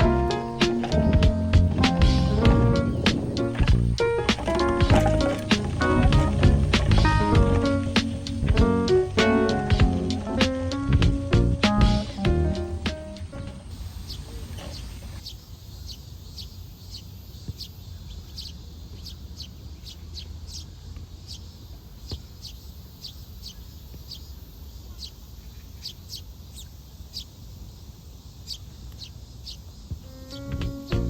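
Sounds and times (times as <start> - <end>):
low background rumble: 0.0 - 15.2
small bird chirping: 13.3 - 31.0.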